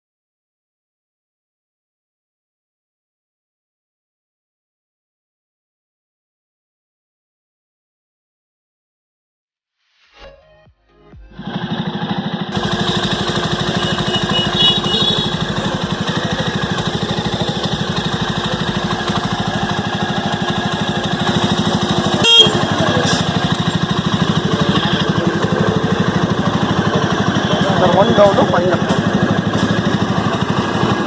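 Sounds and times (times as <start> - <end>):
motorcycle engine running: 11.2 - 31.0.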